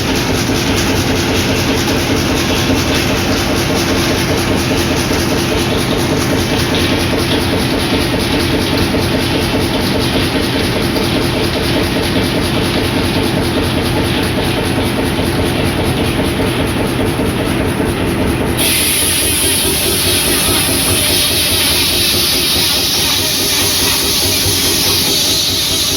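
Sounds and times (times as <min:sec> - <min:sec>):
engine rhythmic beat: 0:00.0 - 0:25.9
loud high-pitched hiss: 0:18.6 - 0:25.9.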